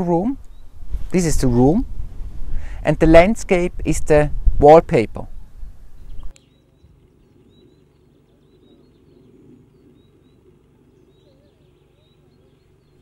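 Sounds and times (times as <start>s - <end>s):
small birds chirping: 0.0s - 1.3s, 5.3s - 13.0s
low steady rumble: 0.0s - 13.0s.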